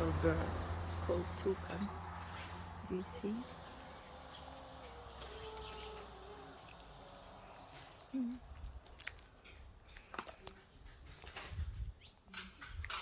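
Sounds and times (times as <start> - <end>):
birds chirping: 0.0 - 10.0, 11.8 - 12.7
forest ambience: 0.0 - 10.0.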